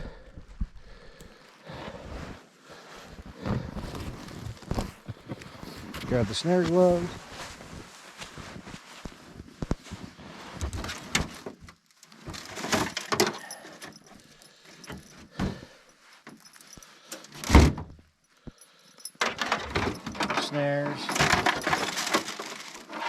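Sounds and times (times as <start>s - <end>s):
gear rustling: 3.0s - 10.8s.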